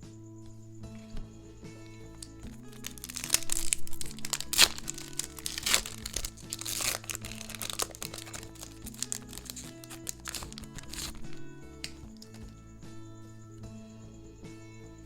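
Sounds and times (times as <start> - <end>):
soft background music: 0.0 - 15.0
crinkly packaging crackling: 1.0 - 12.5.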